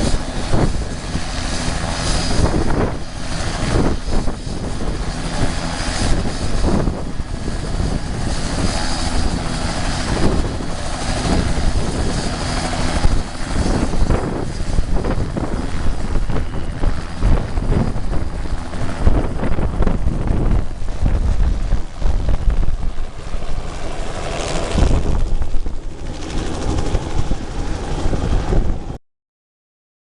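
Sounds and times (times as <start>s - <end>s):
helicopter rotor and engine: 0.0s - 29.0s.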